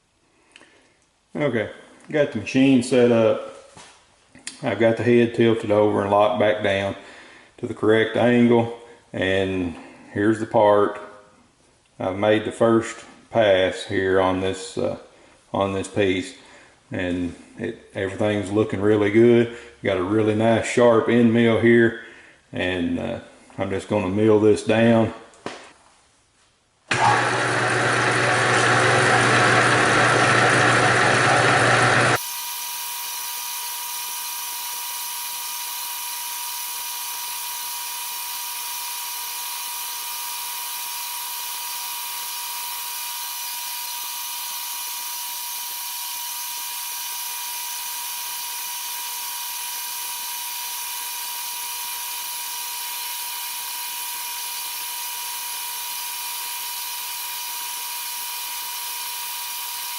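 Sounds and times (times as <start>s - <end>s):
milling machine cutting steel: 27.2s - 59.9s
high-pitched whine: 32.2s - 56.6s.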